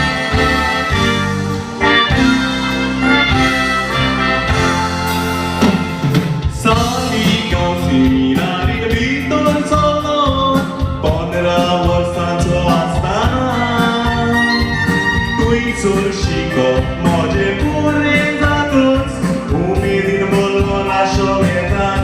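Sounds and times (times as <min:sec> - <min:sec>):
keyboard backing: 0:00.0 - 0:22.0
person singing: 0:06.4 - 0:22.0.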